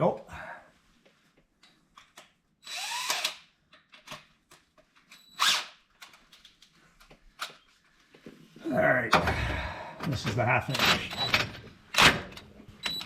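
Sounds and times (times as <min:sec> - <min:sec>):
power drill running: 0:02.6 - 0:03.4, 0:05.4 - 0:05.7
small clicks and handling knocks: 0:06.0 - 0:07.6.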